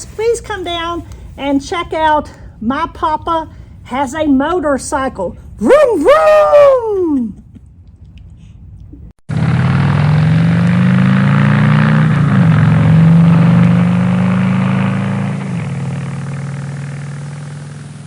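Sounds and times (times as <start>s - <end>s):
motorcycle engine running: 9.3s - 18.0s.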